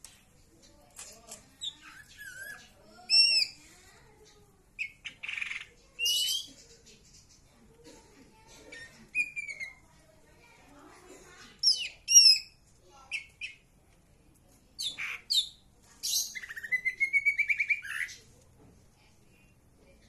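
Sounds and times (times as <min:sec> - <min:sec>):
bird whistling and chirping: 0:16.2 - 0:18.1.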